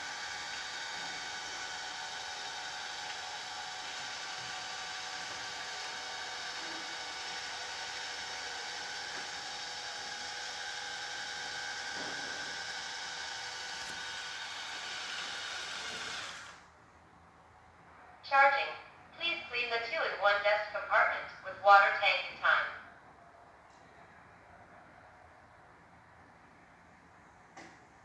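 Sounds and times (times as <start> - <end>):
robot vacuum whirring: 0.0 - 16.6.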